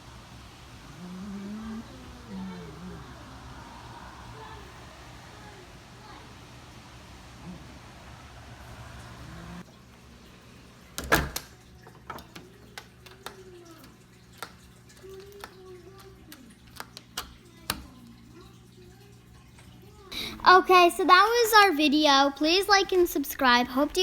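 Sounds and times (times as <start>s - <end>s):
wind rushing: 1.8s - 9.6s.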